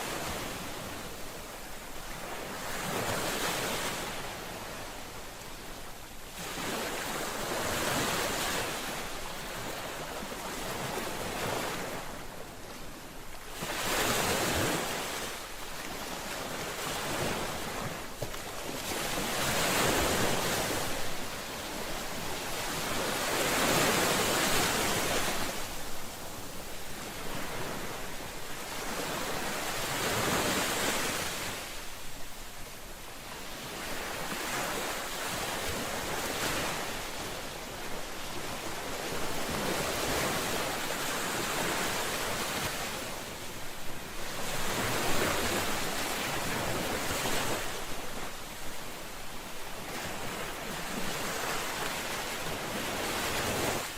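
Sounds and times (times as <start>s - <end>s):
ocean waves breaking: 13.4s - 31.8s, 33.4s - 53.9s.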